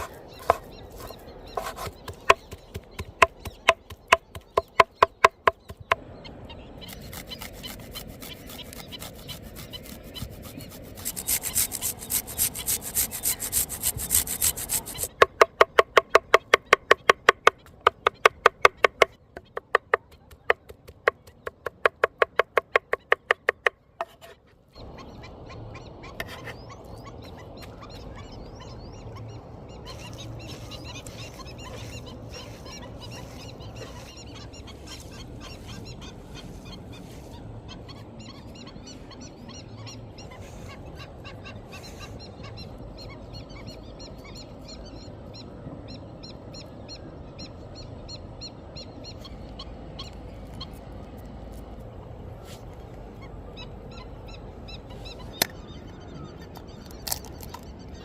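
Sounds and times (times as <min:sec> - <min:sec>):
bird calls and chirps: 0:00.0 - 0:58.0
rapid sharp knocks: 0:15.1 - 0:23.8
low background noise: 0:23.7 - 0:58.0.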